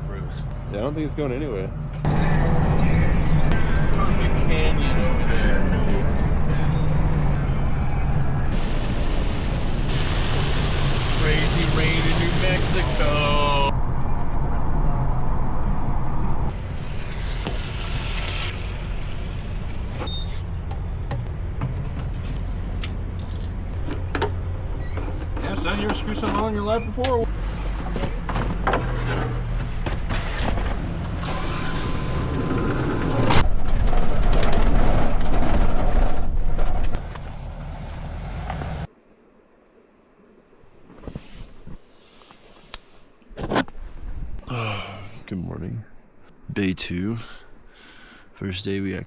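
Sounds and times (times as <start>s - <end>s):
vehicle rumble: 0.0s - 38.9s.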